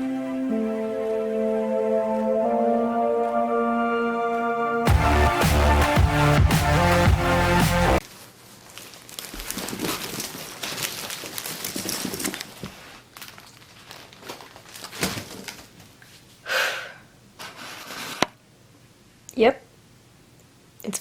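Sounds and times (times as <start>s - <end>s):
intro music: 0.0s - 8.0s
crinkling and rustling: 8.0s - 16.4s, 17.4s - 18.4s.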